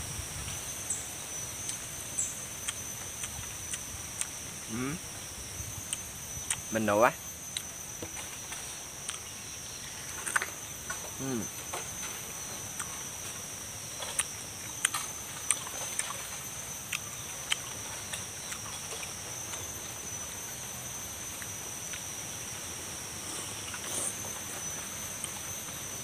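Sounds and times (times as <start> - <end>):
insect drone: 0.0 - 26.0
biting and chewing pineapple: 2.6 - 5.0, 5.8 - 22.3.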